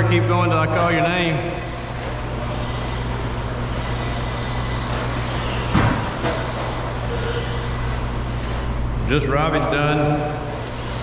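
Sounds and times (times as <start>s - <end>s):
electric motors whining: 0.0s - 11.0s
tyre and track noise: 1.7s - 8.7s
thump: 5.7s - 6.5s.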